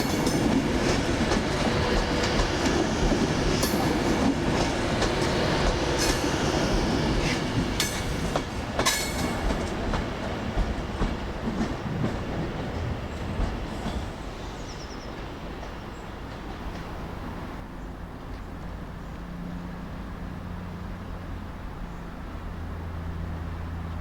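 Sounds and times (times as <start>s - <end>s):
train wheels clicking over rail joints: 0.0s - 14.4s.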